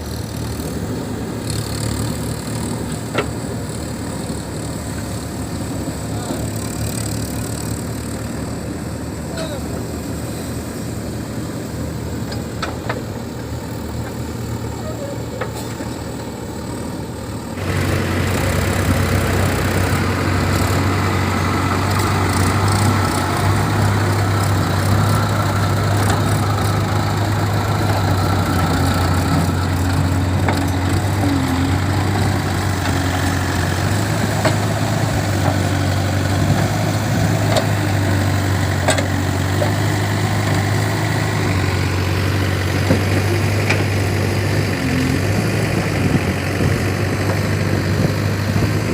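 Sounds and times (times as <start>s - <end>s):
heavy diesel engine running: 0.0s - 48.9s.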